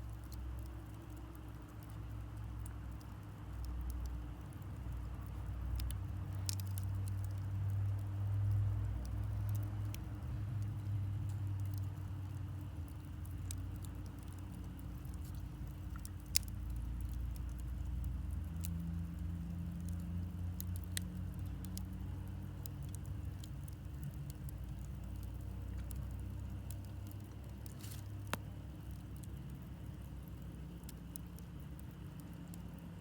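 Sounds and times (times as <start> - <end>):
campfire crackles and pops: 0.0 - 33.0
campfire low rumble: 0.0 - 33.0.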